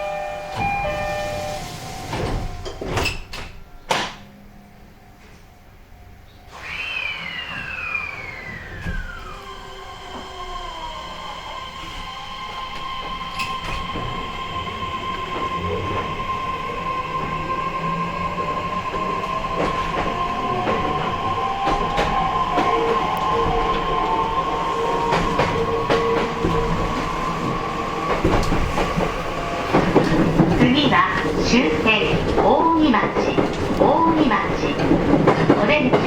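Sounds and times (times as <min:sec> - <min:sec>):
train motor whine: 0:00.0 - 0:03.1, 0:06.0 - 0:35.0
wheels clicking over rail joints: 0:18.8 - 0:36.0.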